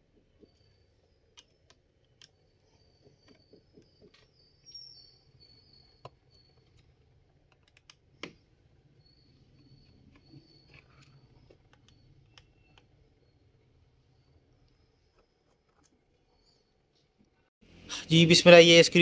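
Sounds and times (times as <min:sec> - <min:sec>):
screwdriver clicks and taps: 0:07.5 - 0:08.4.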